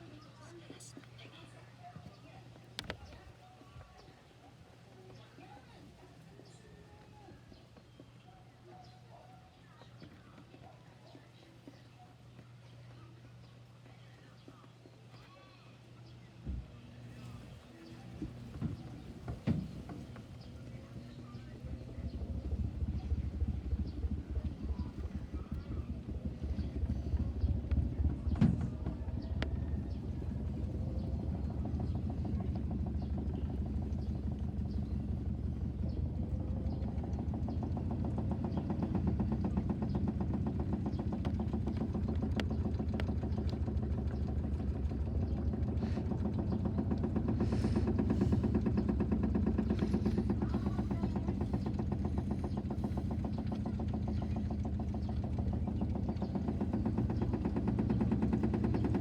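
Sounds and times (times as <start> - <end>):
washing machine spinning: 16.8 - 59.0.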